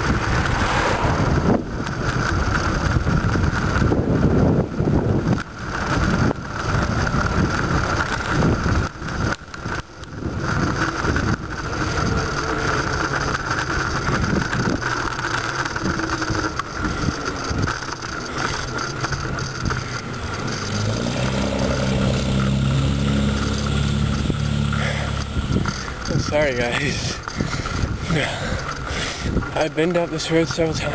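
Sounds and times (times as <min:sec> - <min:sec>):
low droning hum rising: 0:00.0 - 0:03.2, 0:03.8 - 0:30.2
wind buffeting microphone: 0:00.0 - 0:30.9
steady high whine: 0:07.4 - 0:30.9.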